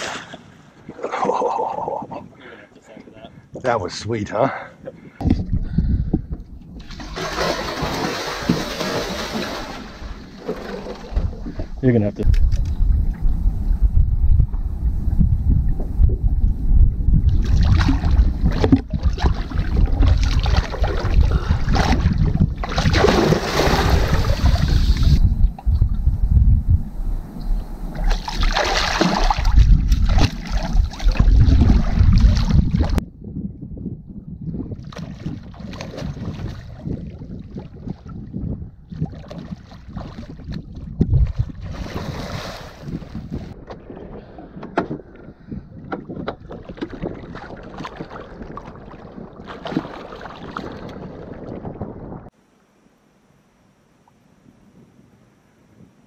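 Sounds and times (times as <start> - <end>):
wind buffeting microphone: 0.7 - 52.3
fish thrashing at surface: 6.8 - 11.3
water splashing and lapping: 6.8 - 13.2, 17.2 - 25.8, 27.9 - 33.0, 34.8 - 52.3.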